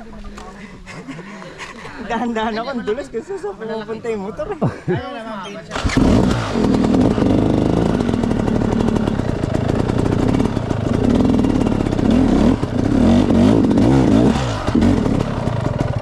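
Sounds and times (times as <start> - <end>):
motorcycle engine revving: 5.7 - 16.0.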